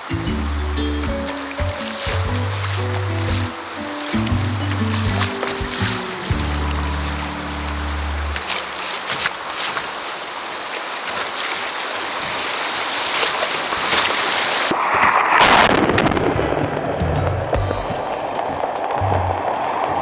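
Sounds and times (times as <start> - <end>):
low steady tones: 0.0 - 9.0
loud burst of splashing: 0.0 - 16.9
rushing whitewater: 0.0 - 20.0.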